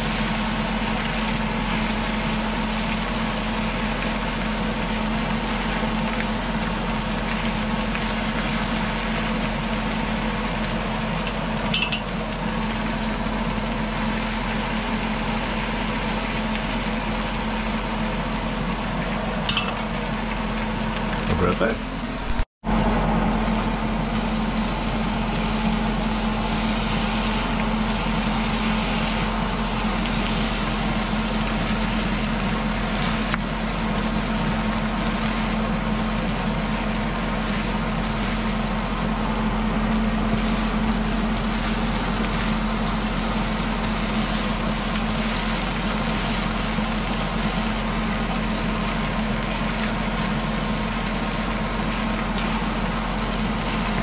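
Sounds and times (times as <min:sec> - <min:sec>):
low hum: 0:00.0 - 0:54.0
meat sizzling in a pan: 0:23.5 - 0:38.6.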